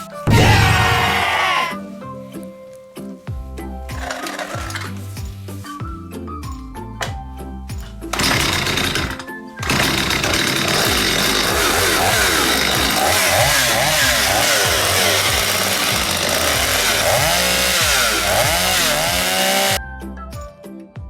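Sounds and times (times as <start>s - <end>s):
chainsaw engine revving: 0.3s - 1.8s, 3.9s - 5.1s, 8.1s - 19.8s.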